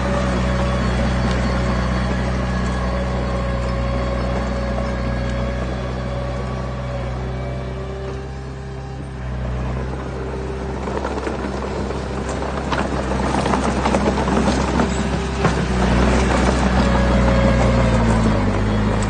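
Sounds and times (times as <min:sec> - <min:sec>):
diesel engine running: 0:00.0 - 0:19.0
rocks clattering and crunching: 0:10.7 - 0:19.0.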